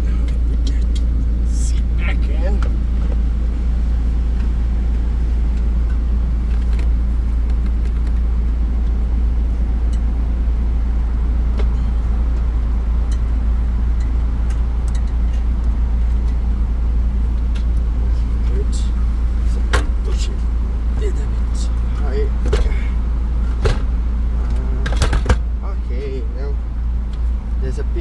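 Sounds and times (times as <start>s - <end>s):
car seat clicks and knocks: 19.7s - 20.2s, 22.4s - 25.5s.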